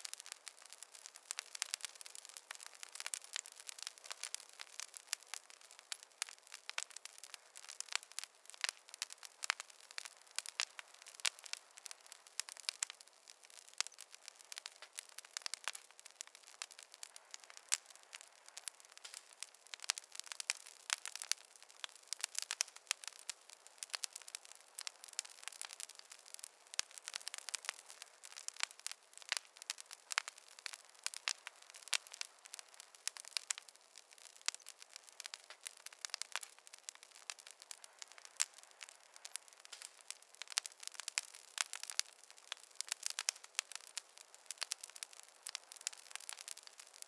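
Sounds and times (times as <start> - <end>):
campfire crackling: 0.0 - 47.0.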